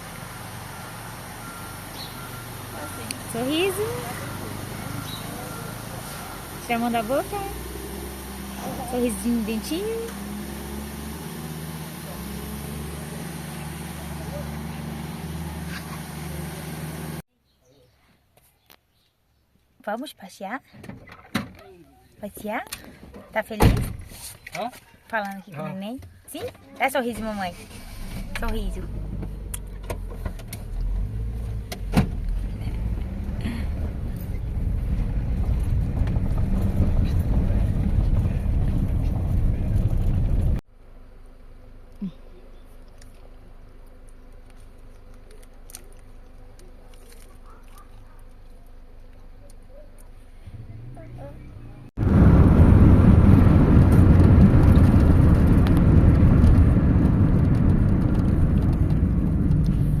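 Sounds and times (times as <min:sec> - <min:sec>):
car cabin rumble: 0:28.2 - 0:40.6, 0:51.2 - 1:00.0.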